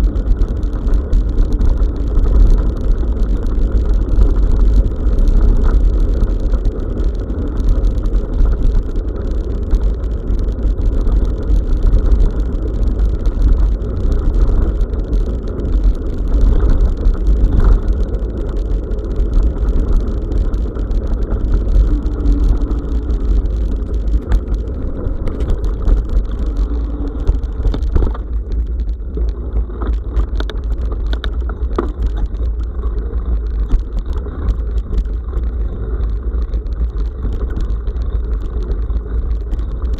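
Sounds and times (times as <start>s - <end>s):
bike clicks and rattles: 0.0s - 39.9s
wind rumble: 0.0s - 39.9s
tyres on rough surface: 10.7s - 39.9s.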